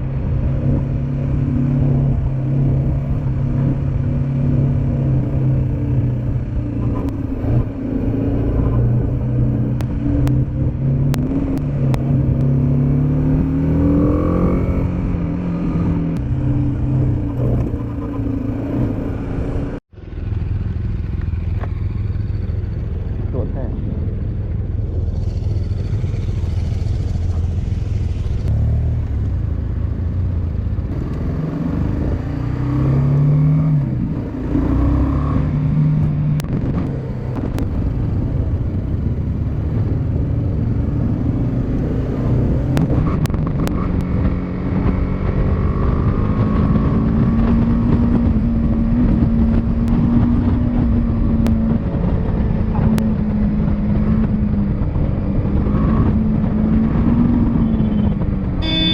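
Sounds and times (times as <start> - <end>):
motorcycle engine running: 0.0 - 32.7.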